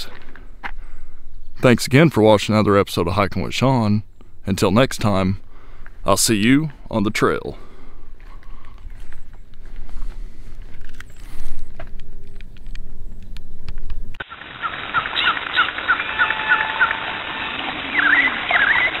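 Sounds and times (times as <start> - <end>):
bird chirping: 1.2 - 1.6, 13.0 - 19.0
steady hiss: 14.2 - 19.0.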